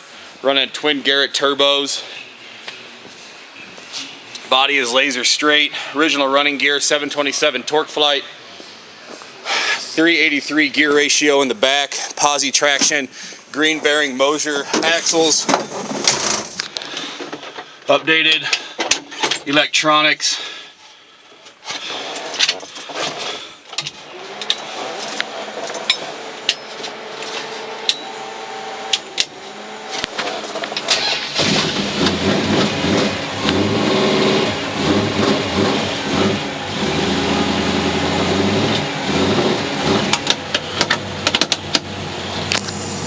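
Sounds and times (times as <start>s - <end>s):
engine cranking with clicks: 23.7s - 28.2s, 28.9s - 43.0s
car engine idling: 25.0s - 43.0s.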